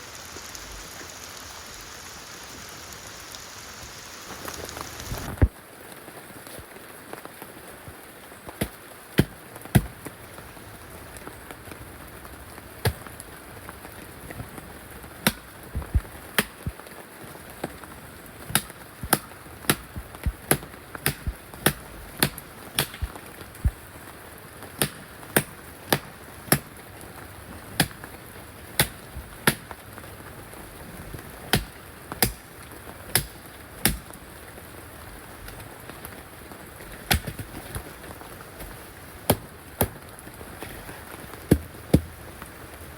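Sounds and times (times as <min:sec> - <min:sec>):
rain hissing: 0:00.0 - 0:42.9
hand tool striking wood: 0:08.6 - 0:10.0, 0:15.2 - 0:16.7, 0:18.5 - 0:23.1, 0:24.8 - 0:26.7, 0:27.8 - 0:28.0, 0:28.8 - 0:29.7, 0:31.5 - 0:32.4, 0:33.1 - 0:34.1, 0:37.1 - 0:37.5, 0:41.5 - 0:42.1.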